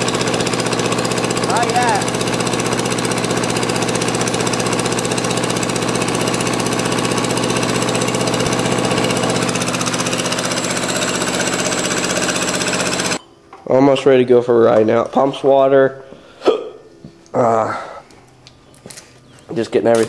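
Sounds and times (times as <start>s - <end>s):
small diesel engine running: 0.0s - 13.2s.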